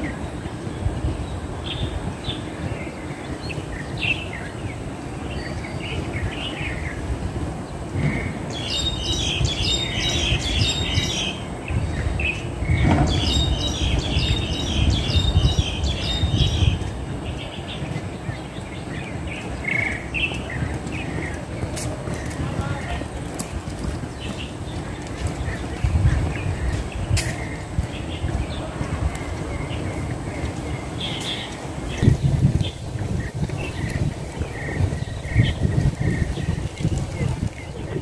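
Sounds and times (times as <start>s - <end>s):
rapid chattering bird calls: 8.0s - 28.7s, 29.4s - 38.0s.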